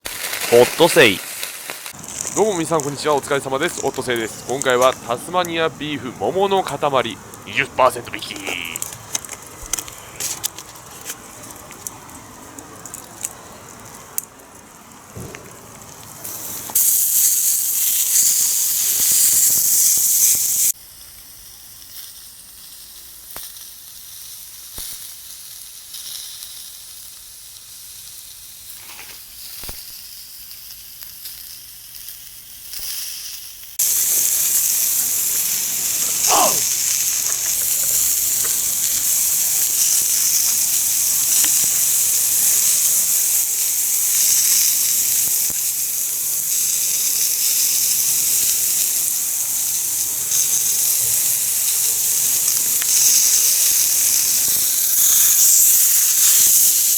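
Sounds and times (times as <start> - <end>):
wood fire crackling: 0.0 - 19.8, 33.8 - 56.9
skillet sizzling hiss: 0.0 - 56.9.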